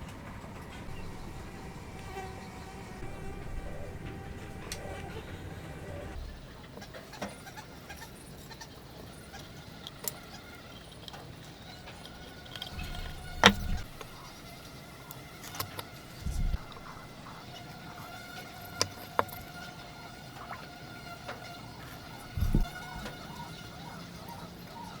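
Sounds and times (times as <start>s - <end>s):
faint high whine: 0.0s - 6.8s, 10.7s - 19.5s, 21.6s - 25.0s
sharp clicks: 12.1s - 14.5s
dull wooden knocks: 12.8s - 14.3s.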